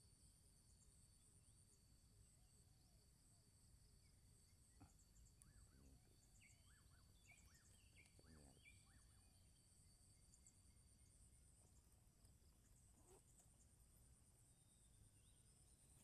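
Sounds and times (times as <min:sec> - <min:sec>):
insects droning: 0:00.0 - 0:16.0
small birds chirping: 0:03.9 - 0:16.0.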